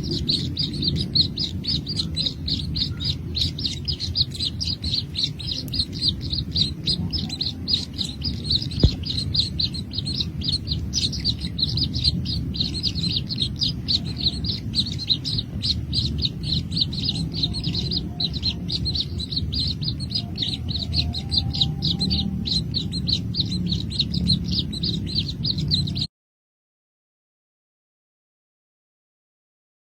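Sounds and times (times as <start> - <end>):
baby birds chirping: 0.0 - 26.1
low rumble: 0.0 - 26.1.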